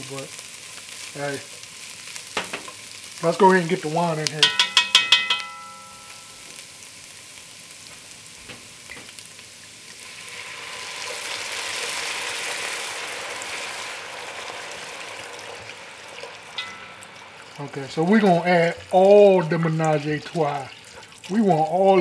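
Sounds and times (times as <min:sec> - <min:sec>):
vegetables sizzling in a pot: 0:00.0 - 0:22.0
spoon stirring: 0:04.4 - 0:06.4.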